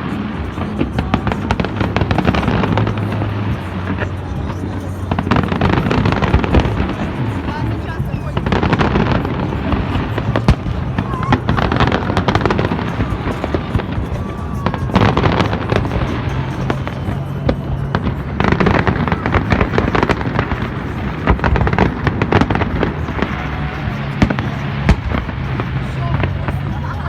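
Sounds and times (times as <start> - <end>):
fireworks bangs and crackling: 0.0 - 27.0
music: 0.0 - 27.0.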